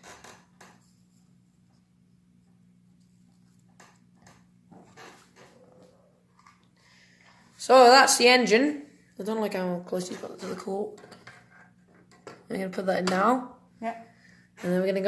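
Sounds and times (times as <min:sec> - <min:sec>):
faint low hum: 0:00.0 - 0:14.8.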